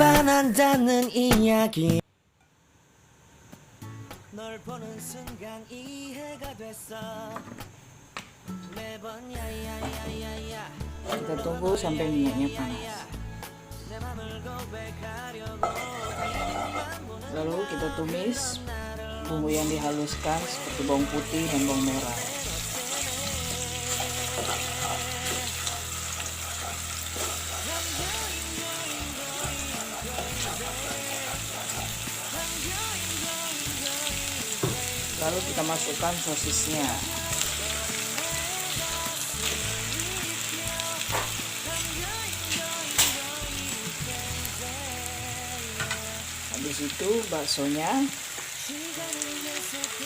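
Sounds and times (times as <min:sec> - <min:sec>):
background music: 0:00.0 - 0:02.0, 0:08.4 - 0:50.0
paste sizzling in hot oil: 0:15.6 - 0:17.1, 0:19.5 - 0:50.0.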